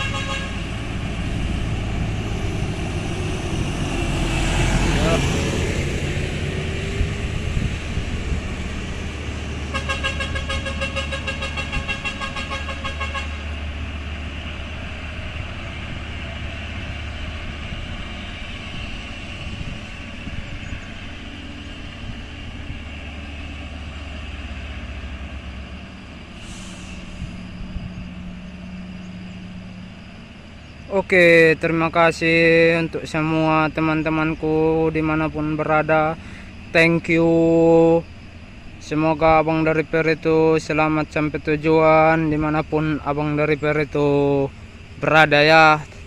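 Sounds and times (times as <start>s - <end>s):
pulsing horn-like tone: 0.0s - 1.4s, 9.6s - 13.6s
diesel truck engines running: 0.0s - 46.0s.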